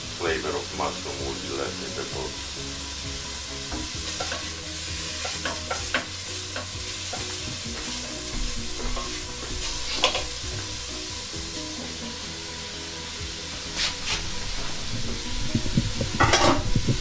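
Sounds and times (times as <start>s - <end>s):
onions sizzling in oil: 0.0s - 17.0s
wooden spoon scraping a pan: 3.8s - 10.4s, 13.6s - 15.3s.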